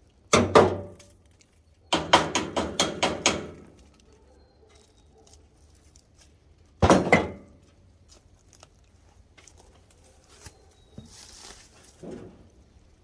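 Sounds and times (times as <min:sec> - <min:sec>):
sharp knocks: 0:00.3 - 0:01.0, 0:02.0 - 0:03.6.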